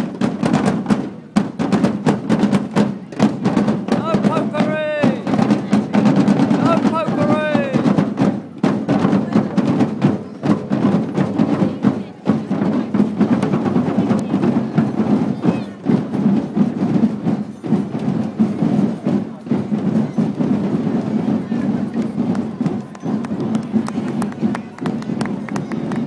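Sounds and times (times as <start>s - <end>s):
marching band drums: 0.0s - 26.0s
people's voices: 2.7s - 26.0s.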